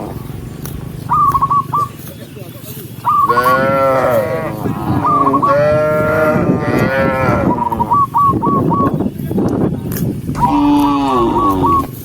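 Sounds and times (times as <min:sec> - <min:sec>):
cows mooing: 0:03.2 - 0:07.9, 0:10.4 - 0:12.0.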